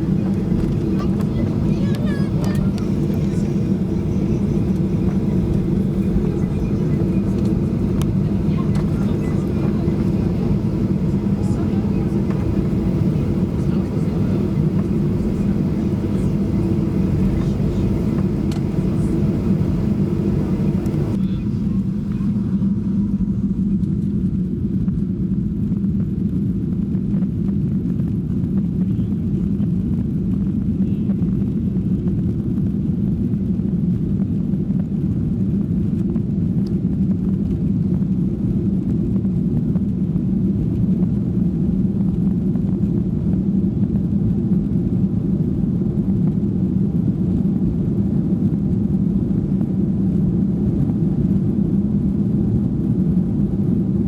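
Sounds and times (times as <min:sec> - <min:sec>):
airplane cabin rumble: 0:00.0 - 0:25.1.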